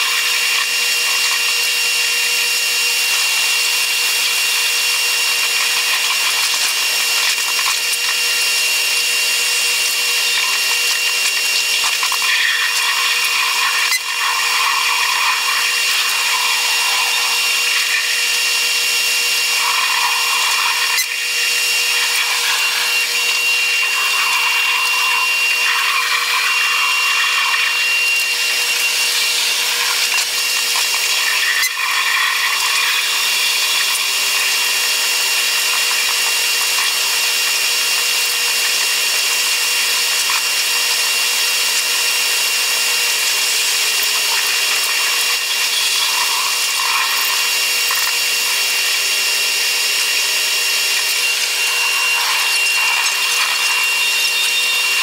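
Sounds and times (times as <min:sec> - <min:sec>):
high-pitched train whir: 0:00.0 - 0:55.0.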